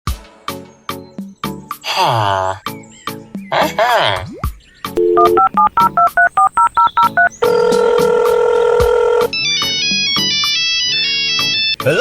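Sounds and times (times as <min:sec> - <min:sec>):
touch-tone keypad beeps: 0:05.0 - 0:07.7
ringtone melody: 0:05.0 - 0:08.2
steady telephone tone: 0:05.0 - 0:09.3
telephone dial tone: 0:05.0 - 0:09.3.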